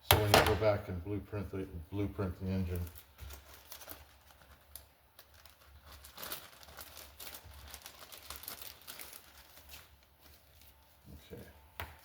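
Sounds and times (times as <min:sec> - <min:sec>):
packaging crinkling and rustling: 0:02.5 - 0:11.4.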